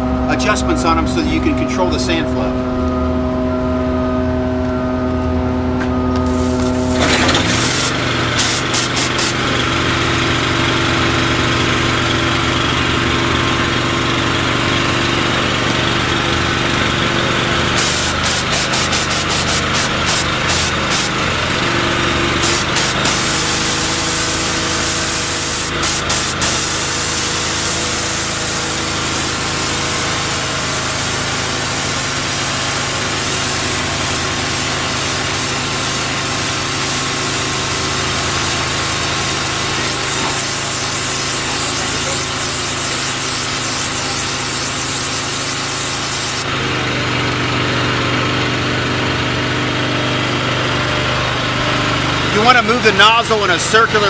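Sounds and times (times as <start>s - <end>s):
pressure washer engine drone: 0.0s - 54.0s
hiss of water jet: 6.2s - 9.6s, 17.8s - 21.2s, 22.4s - 46.5s.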